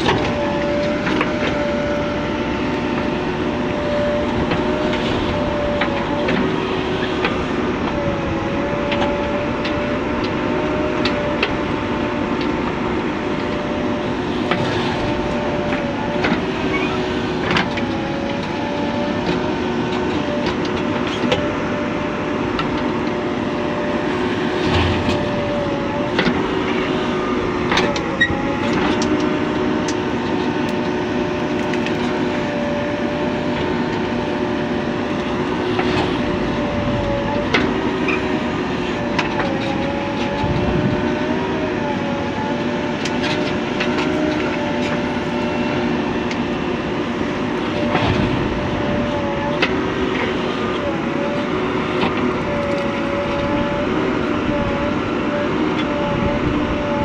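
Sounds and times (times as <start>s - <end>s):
heavy diesel engine running: 0.0s - 57.0s
clanks and rattles: 24.0s - 30.6s, 47.0s - 50.9s.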